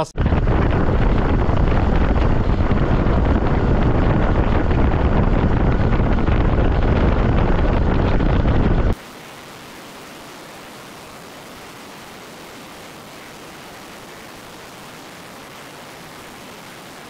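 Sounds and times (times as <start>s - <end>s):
wind buffeting on microphone: 0.1s - 9.0s
steady hiss: 8.9s - 17.0s.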